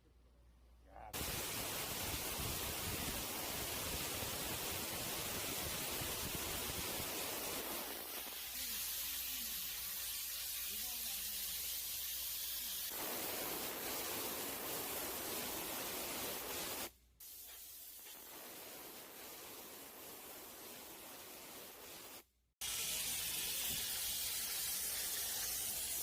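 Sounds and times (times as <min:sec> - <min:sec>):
steam cleaner jet hissing: 0:01.2 - 0:26.0.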